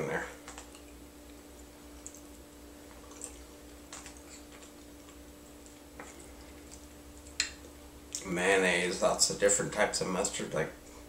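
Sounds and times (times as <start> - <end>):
steady low hum: 0.0 - 11.0
mouth clicks and smacks chewing: 0.4 - 8.2.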